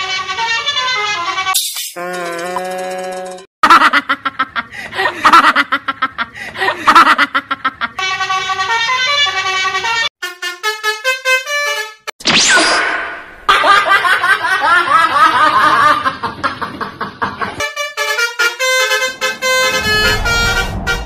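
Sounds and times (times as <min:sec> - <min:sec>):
multi-tone bus horn playing a tune: 0:00.0 - 0:01.5, 0:08.0 - 0:12.1, 0:17.6 - 0:21.0.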